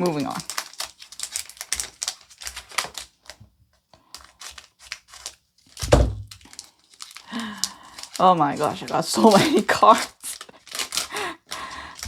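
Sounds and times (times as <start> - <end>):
cards clicking and rustling: 0.0 - 3.4, 4.0 - 12.0
thump on table: 5.8 - 6.3.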